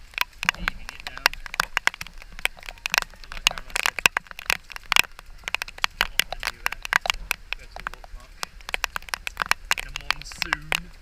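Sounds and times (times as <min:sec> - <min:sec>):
rapid crackling clicks: 0:00.0 - 0:11.0.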